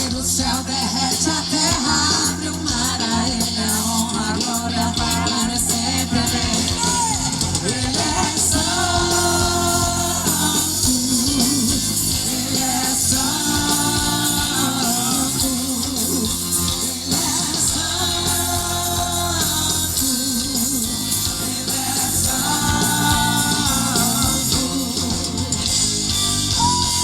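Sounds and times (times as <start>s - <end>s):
live band playing gospel song: 0.0s - 27.0s.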